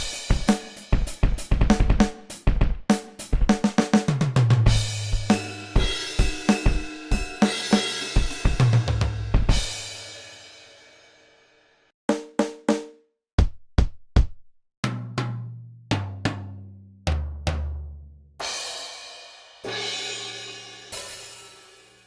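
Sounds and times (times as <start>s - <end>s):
drum hits: 13.4s - 16.5s.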